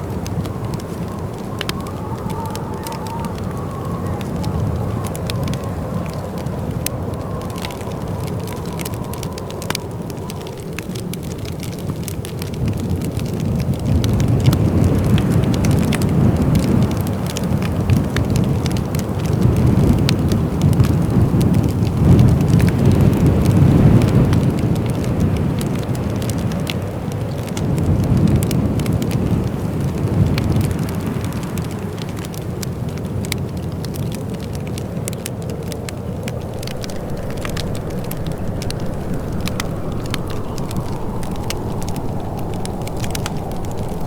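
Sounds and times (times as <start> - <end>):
low rushing wind: 0.0 - 31.4, 34.2 - 44.0
fire crackling and popping: 0.0 - 44.0.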